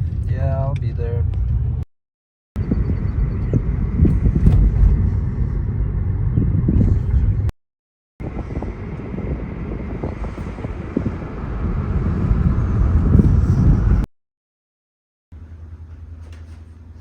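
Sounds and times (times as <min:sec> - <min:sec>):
car rumbling on road: 0:00.0 - 0:01.9, 0:02.6 - 0:07.5, 0:08.2 - 0:14.1
wind noise on microphone: 0:02.6 - 0:07.5, 0:08.2 - 0:14.1.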